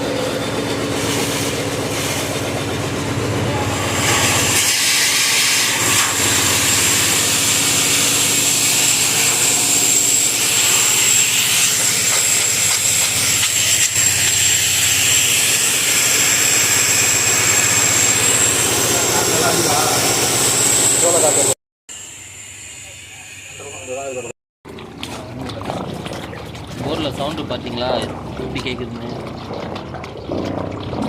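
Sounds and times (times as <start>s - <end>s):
compressed air and water blasting: 0.0s - 24.3s
diesel compressor engine running: 0.0s - 31.0s.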